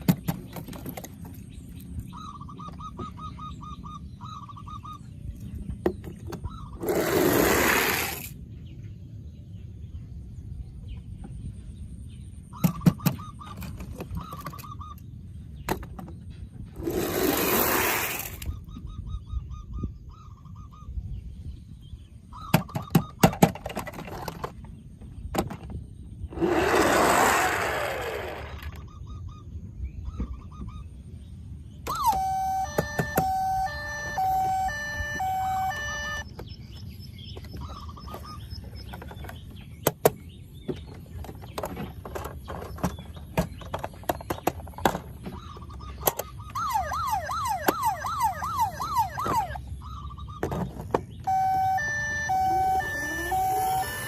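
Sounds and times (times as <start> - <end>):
electronic toy beeping tune: 31.8 - 36.3, 46.5 - 49.6, 51.2 - 54.0.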